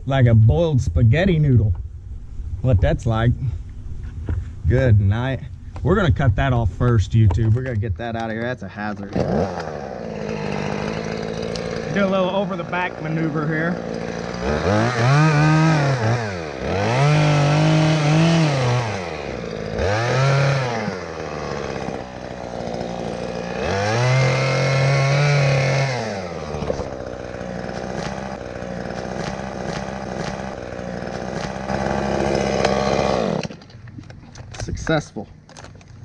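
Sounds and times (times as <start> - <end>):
chainsaw revving and cutting wood: 8.8 - 33.9.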